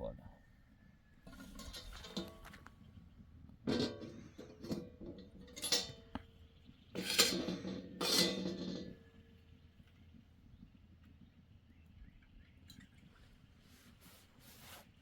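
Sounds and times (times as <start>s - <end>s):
metal clinking and ringing: 3.7s - 6.3s, 7.0s - 9.0s.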